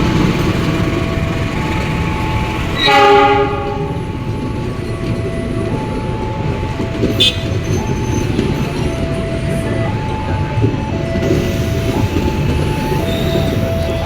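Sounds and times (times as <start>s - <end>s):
rumble of passing train: 0.0s - 14.0s
train horn blast: 2.8s - 4.0s, 7.1s - 7.8s.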